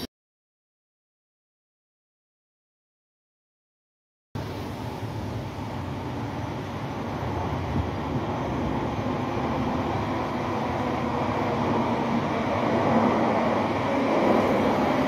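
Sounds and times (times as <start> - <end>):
train low rumble: 4.4 - 15.0.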